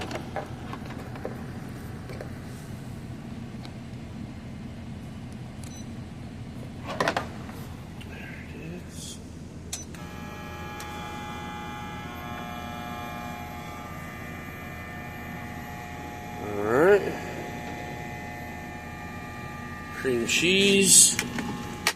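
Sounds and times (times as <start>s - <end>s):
low steady drone: 7.6s - 21.9s
electric appliance humming: 9.8s - 21.9s.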